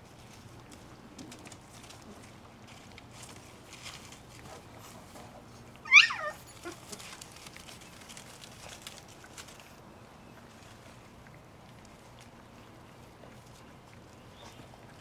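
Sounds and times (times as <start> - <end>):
puppy yelp: 5.8 - 6.9.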